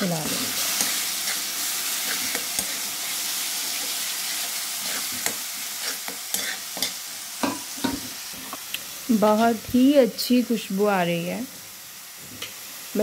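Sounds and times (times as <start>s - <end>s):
paste sizzling in oil: 0.0s - 13.0s
spoon scraping a pan: 0.2s - 8.6s.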